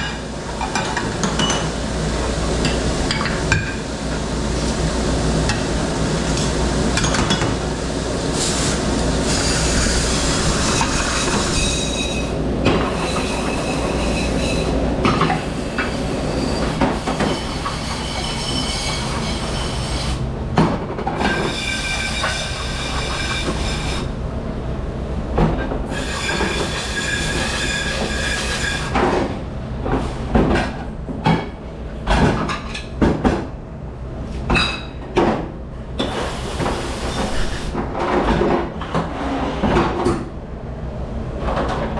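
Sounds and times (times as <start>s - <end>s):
dish machinery humming: 0.2s - 29.9s.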